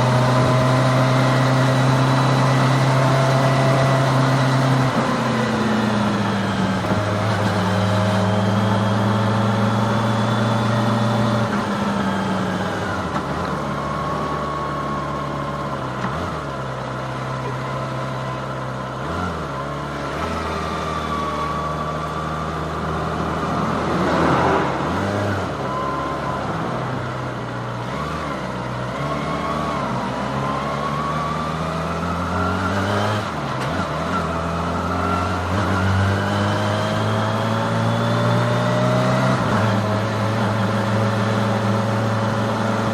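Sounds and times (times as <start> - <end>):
motorcycle engine cruising: 0.0 - 42.9
rush of noise: 22.8 - 27.7.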